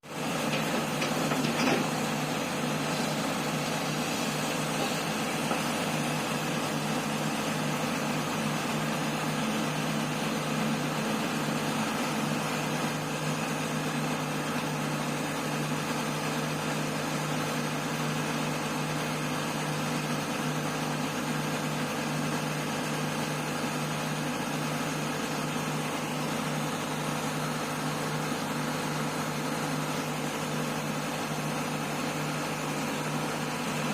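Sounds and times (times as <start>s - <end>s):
excavator diesel engines humming: 0.2s - 14.8s.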